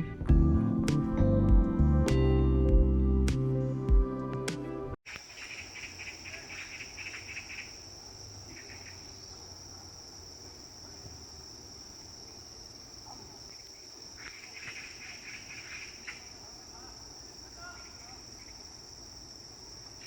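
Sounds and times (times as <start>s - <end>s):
background music: 0.0s - 5.0s
insect pulsed trilling: 5.1s - 9.5s
insects chirring: 5.1s - 20.0s.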